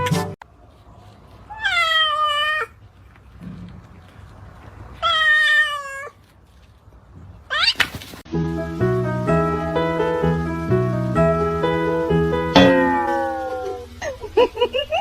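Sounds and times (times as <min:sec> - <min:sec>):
cat meowing: 0:01.5 - 0:02.8, 0:05.0 - 0:06.2, 0:12.8 - 0:13.9.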